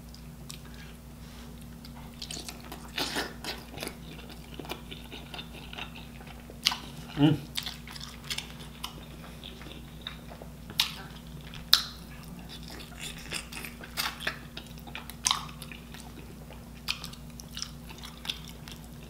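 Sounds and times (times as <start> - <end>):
chewing and biting food: 1.6 - 19.0.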